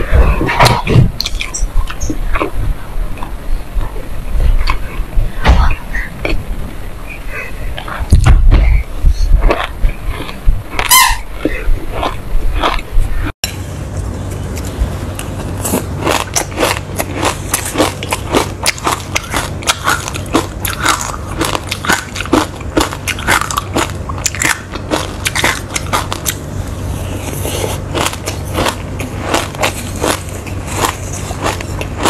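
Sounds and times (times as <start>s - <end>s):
crunchy chewing of seeds: 0.0s - 5.4s, 7.1s - 32.0s.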